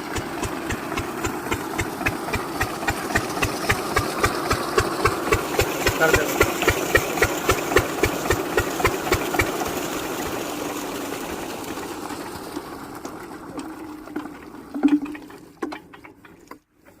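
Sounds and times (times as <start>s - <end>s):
diesel engine beating: 0.0s - 10.3s
water rushing from pump: 0.0s - 17.0s.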